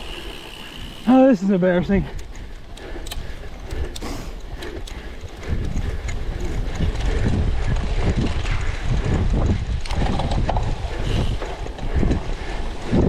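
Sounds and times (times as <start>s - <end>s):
bicycle clicking and rattling: 0.0s - 13.0s
wind on microphone: 3.2s - 13.0s
tyres rumbling over rough ground: 3.6s - 13.0s.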